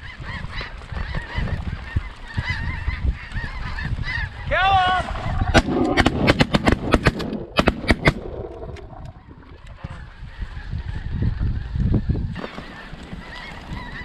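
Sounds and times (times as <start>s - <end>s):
shotgun blasts: 5.5s - 8.4s.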